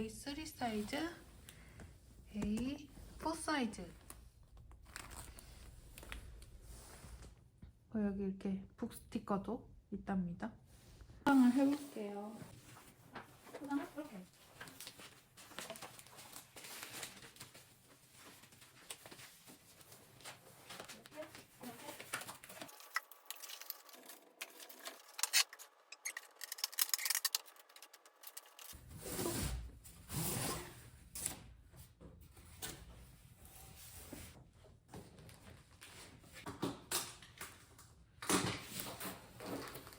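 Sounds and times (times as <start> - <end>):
packaging rustling and crinkling: 4.8 - 6.4, 12.8 - 28.8.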